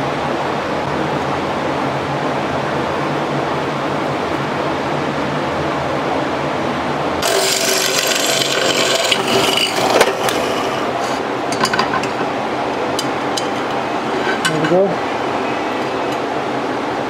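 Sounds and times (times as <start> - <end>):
steady shop hum: 0.0 - 17.0
scraping on steel: 7.2 - 12.2, 13.4 - 14.7.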